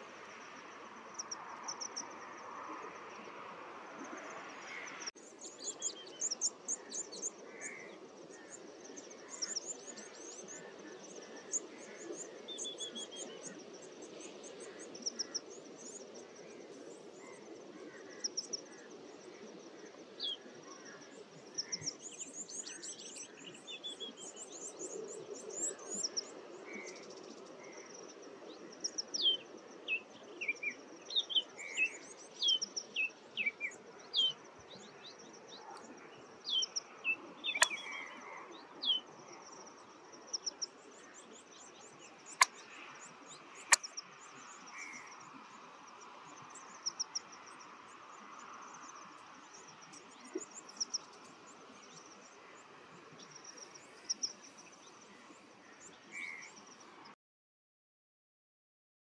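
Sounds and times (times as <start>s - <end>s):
outdoor background noise: 0.0s - 57.2s
birds chirping and trilling: 31.1s - 39.0s.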